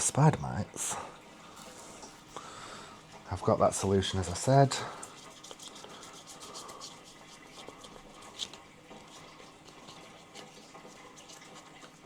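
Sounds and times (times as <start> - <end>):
hands rubbing plant leaves: 3.4 - 12.0.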